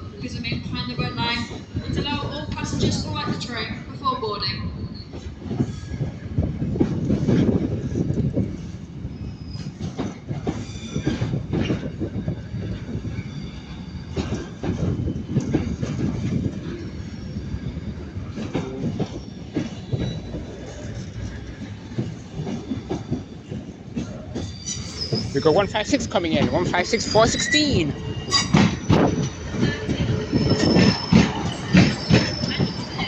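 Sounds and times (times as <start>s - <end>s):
train rumble: 0.0s - 33.0s
train wheels clacking over rail joints: 9.6s - 17.0s, 17.7s - 33.0s
faint wheel squeal: 24.4s - 25.7s, 30.3s - 33.0s.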